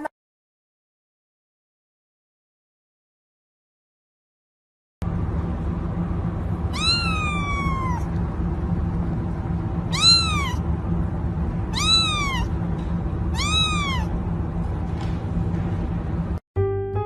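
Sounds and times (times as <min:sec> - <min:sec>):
low background hum: 0:05.0 - 0:16.4
cat meowing: 0:06.7 - 0:08.1, 0:09.9 - 0:10.6, 0:11.7 - 0:12.6, 0:13.3 - 0:14.2.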